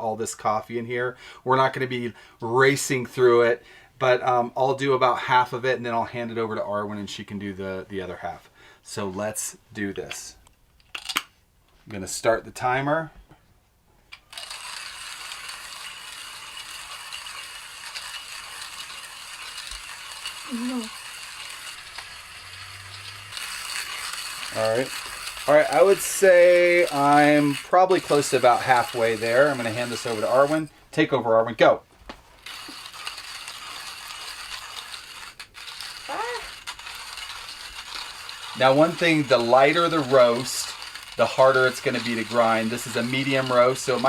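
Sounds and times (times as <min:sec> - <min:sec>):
hand coffee grinder crunching beans: 0:14.2 - 0:30.7, 0:32.3 - 0:44.0.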